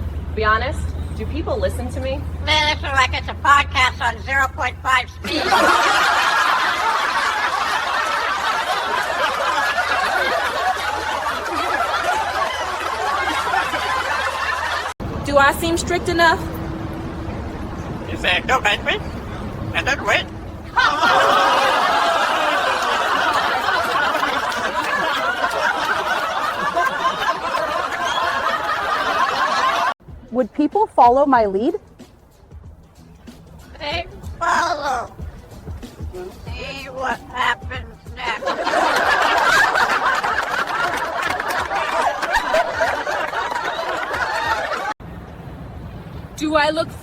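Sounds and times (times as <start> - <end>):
crowd laughing: 5.2 - 15.0, 18.5 - 30.0, 38.2 - 45.0.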